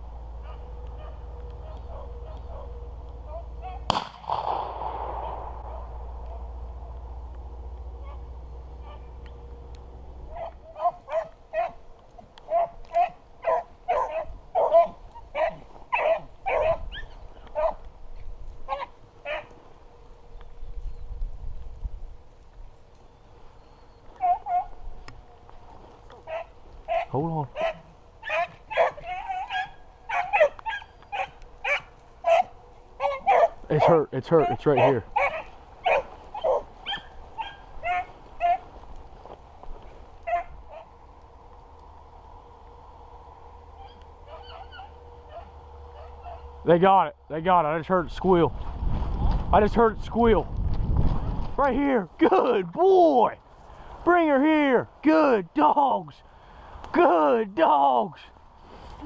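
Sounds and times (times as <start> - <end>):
dogs barking and baying: 0.0 - 4.0, 5.1 - 20.1, 23.4 - 25.4, 26.0 - 41.1, 43.6 - 46.7.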